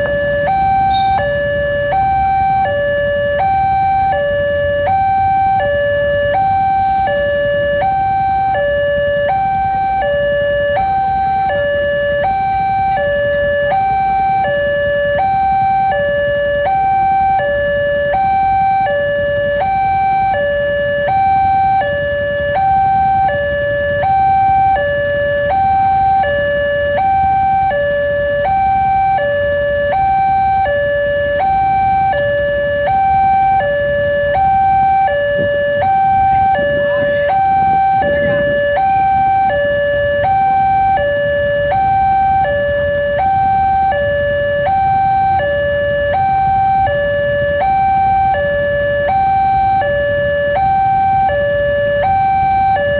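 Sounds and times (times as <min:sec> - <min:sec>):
two-tone crossing alarm: 0:00.0 - 0:52.9.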